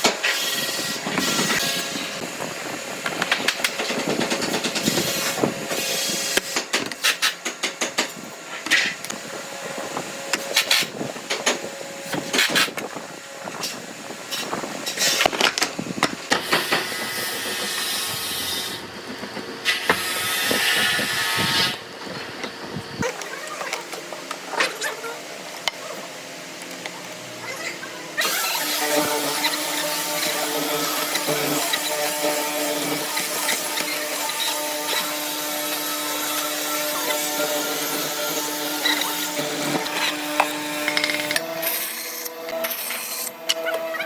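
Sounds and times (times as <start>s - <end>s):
machine running: 26.3s - 44.0s.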